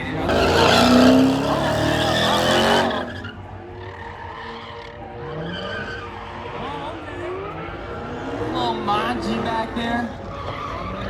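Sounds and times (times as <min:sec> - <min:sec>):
car engine revving high: 0:00.0 - 0:03.4.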